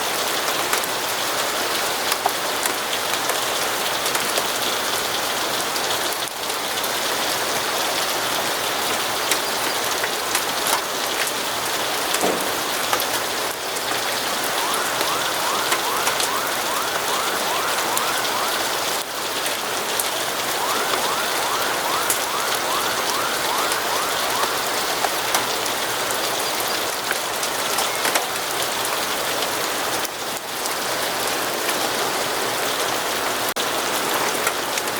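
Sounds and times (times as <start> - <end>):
steady rain with ticks: 0.0 - 34.9
faint siren yelping: 13.6 - 29.0.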